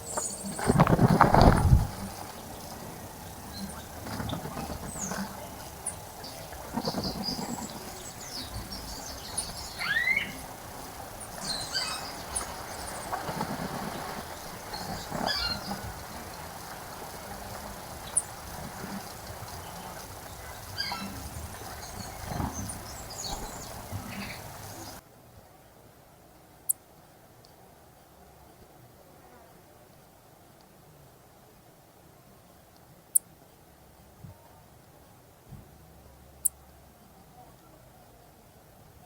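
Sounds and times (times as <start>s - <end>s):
birds chirping and calling: 0.0s - 25.0s
low background noise: 0.0s - 39.0s.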